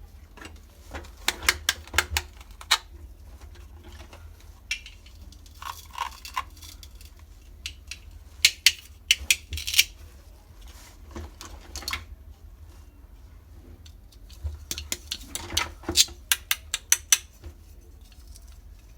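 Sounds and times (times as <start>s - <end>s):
toy kitchen pieces clicking: 4.7s - 10.0s, 14.2s - 17.4s.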